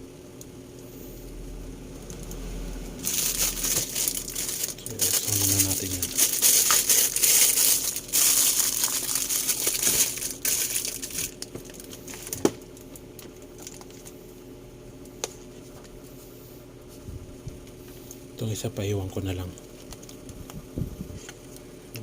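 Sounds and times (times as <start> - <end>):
faint steady hum: 0.0 - 22.0
plastic packaging crinkling: 3.0 - 14.2.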